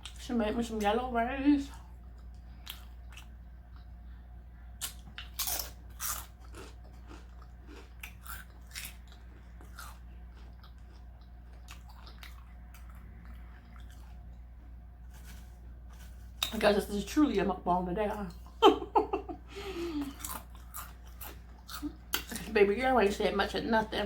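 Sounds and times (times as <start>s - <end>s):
steady low hum: 0.0s - 24.0s
person chewing crunchy taco: 1.8s - 4.0s, 4.7s - 16.5s, 19.7s - 22.5s.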